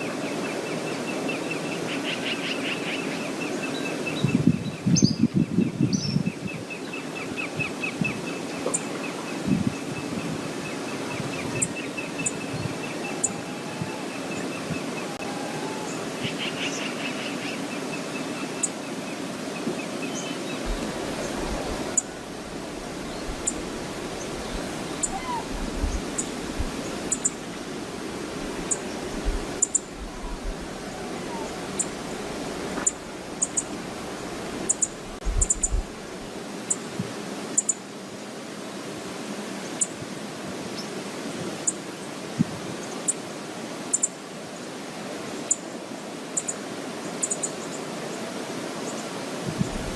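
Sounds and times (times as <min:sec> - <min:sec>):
waterfall and river rushing: 0:00.0 - 0:05.2, 0:06.0 - 0:49.9
wind buffeting microphone: 0:04.2 - 0:06.8, 0:09.4 - 0:15.4, 0:20.6 - 0:27.1, 0:28.1 - 0:36.4, 0:49.4 - 0:49.9.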